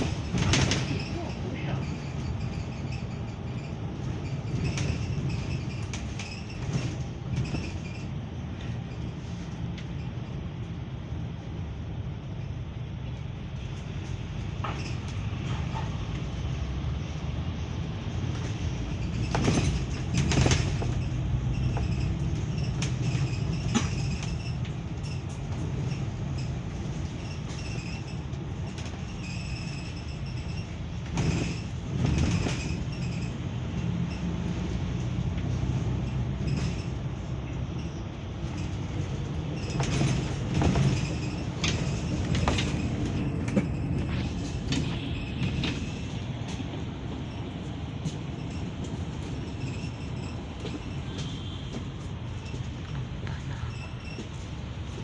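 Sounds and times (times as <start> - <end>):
rattles: 0.0 - 10.4, 18.3 - 34.6, 36.0 - 53.0
bus cabin rumble: 0.0 - 55.0.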